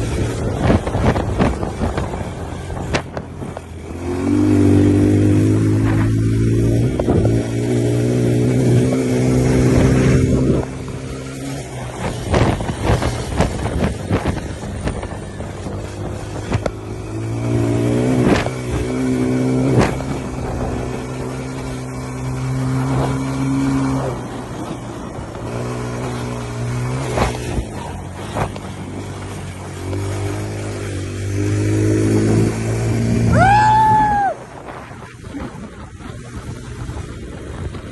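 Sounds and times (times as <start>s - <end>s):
engine knocks and clatter: 0.0s - 33.0s, 34.5s - 37.9s
dirt bike engine running: 0.0s - 37.9s.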